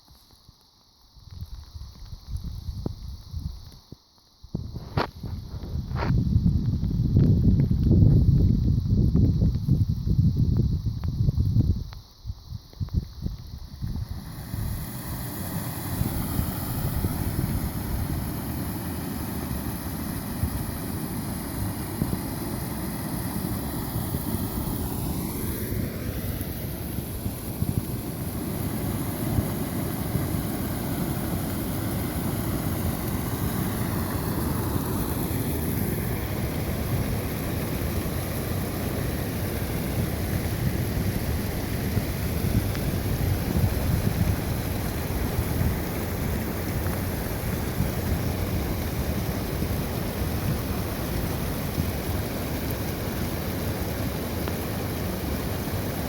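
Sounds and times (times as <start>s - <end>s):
floodwater rushing: 14.2s - 56.0s.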